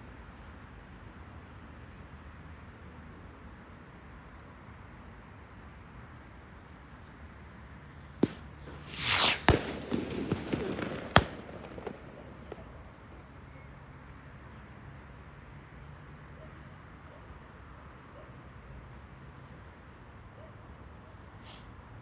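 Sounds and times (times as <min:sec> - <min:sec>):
faint firework pops: 0:08.0 - 0:13.3
firework whoosh: 0:08.2 - 0:12.9
firework crackling: 0:08.2 - 0:13.2
firework bangs: 0:08.2 - 0:13.3.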